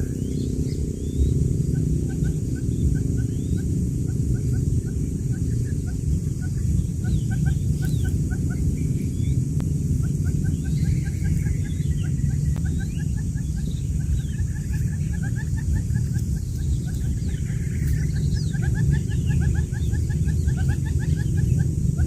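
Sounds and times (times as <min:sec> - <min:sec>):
loud steady low hum: 0:00.0 - 0:22.0
quail chicks peeping: 0:00.0 - 0:22.0.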